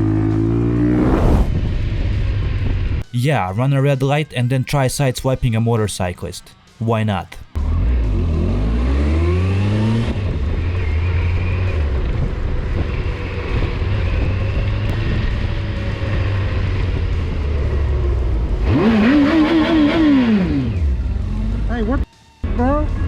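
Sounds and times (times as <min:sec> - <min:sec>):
motorcycle engine revving: 0:00.0 - 0:02.8, 0:07.6 - 0:22.0.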